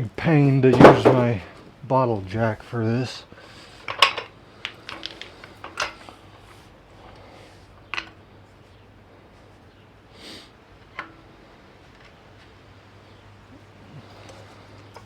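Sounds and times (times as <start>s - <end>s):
soft breath or sniff: 6.0s - 7.8s, 10.1s - 10.6s.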